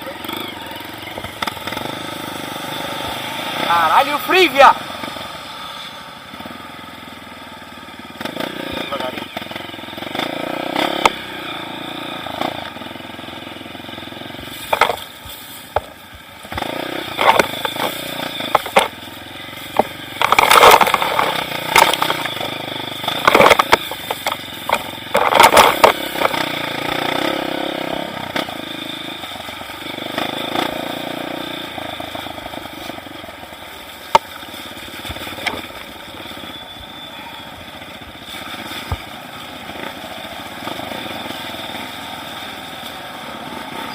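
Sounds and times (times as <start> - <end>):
motorcycle engine running: 0.0 - 43.9
sharp knocks and clatter: 14.6 - 15.1, 15.7 - 19.0, 19.7 - 26.6.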